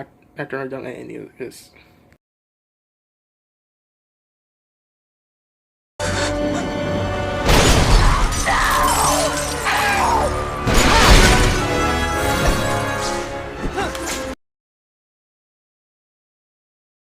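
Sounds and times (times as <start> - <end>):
dramatic music: 6.0 - 14.4
loud explosion blasts: 7.4 - 8.5
glass shattering: 7.4 - 13.2.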